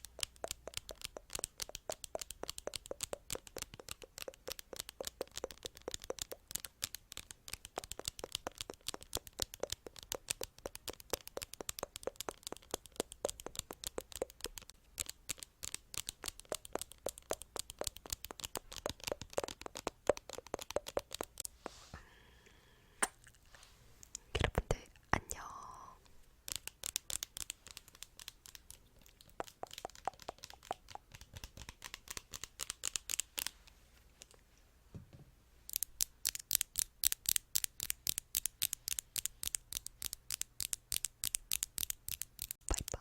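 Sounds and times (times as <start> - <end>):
fast light tapping: 0.0 - 21.5.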